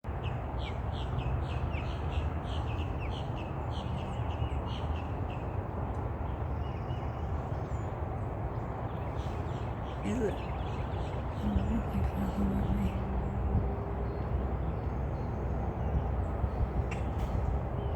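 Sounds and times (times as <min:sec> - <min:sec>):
birds calling sharply: 0:08.8 - 0:17.9.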